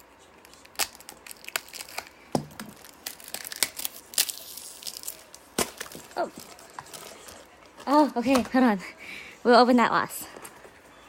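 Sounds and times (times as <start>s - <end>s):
packaging crinkling and tearing: 0.4s - 8.0s.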